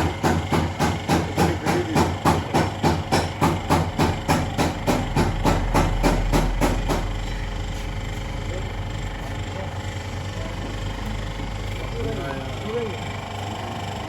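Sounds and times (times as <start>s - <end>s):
rapid even knocking: 0.0s - 7.2s.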